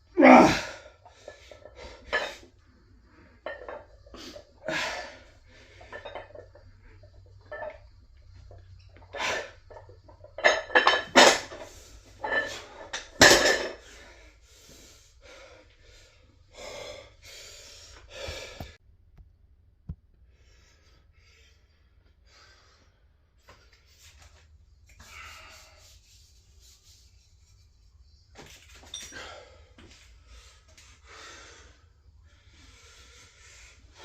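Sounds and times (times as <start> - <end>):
person breathing hard: 13.8 - 18.8, 29.1 - 34.0.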